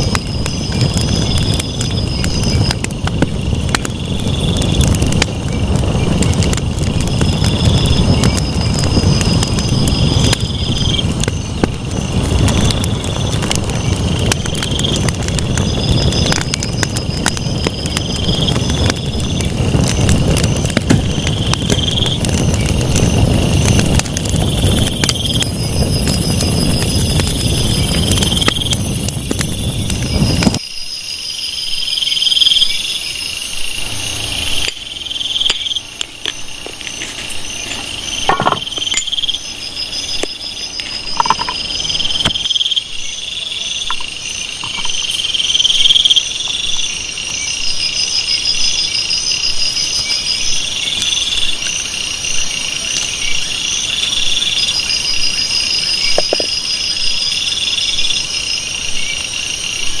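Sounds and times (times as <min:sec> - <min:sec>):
fast pulsing insect trill: 0:00.0 - 1:00.0
insect chirring call: 0:00.0 - 1:00.0
steady high whine: 0:31.6 - 0:57.2.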